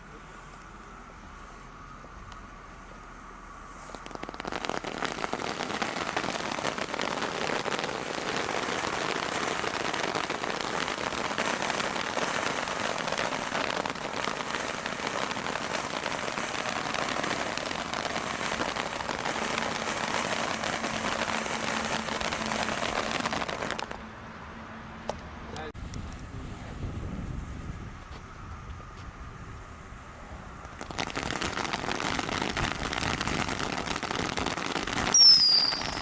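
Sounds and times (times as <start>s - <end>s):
firework crackling: 0.0s - 24.0s, 29.8s - 36.0s.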